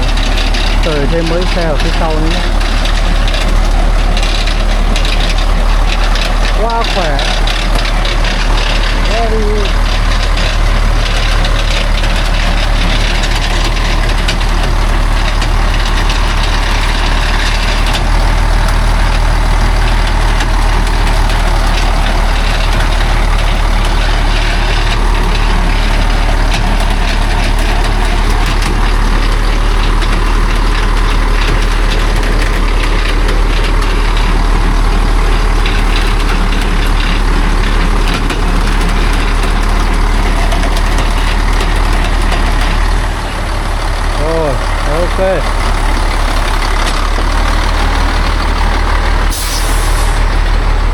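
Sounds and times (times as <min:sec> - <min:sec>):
truck engine droning at low revs: 0:00.0 - 0:50.9.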